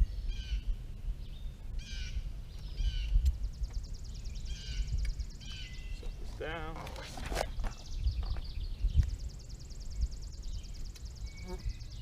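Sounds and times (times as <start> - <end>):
birds harsh calls: 0.0 - 12.0
steady low rumble: 0.0 - 12.0
high buzzing bird trill: 1.3 - 6.7, 7.5 - 12.0.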